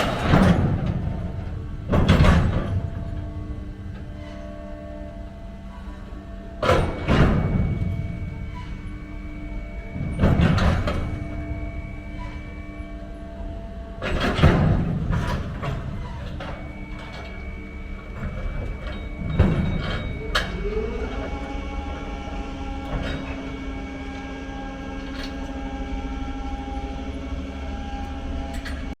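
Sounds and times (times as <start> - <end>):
heavy truck engine running: 0.0 - 29.0
loud clanks: 14.0 - 23.7.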